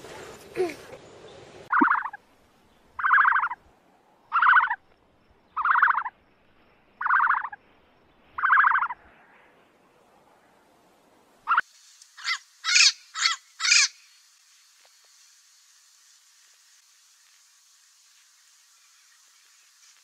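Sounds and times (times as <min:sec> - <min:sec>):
animal calling in pulsing bursts: 0:01.7 - 0:02.2, 0:03.0 - 0:03.6, 0:04.3 - 0:04.8, 0:05.6 - 0:06.1, 0:07.0 - 0:07.6, 0:08.4 - 0:09.0, 0:11.4 - 0:14.1.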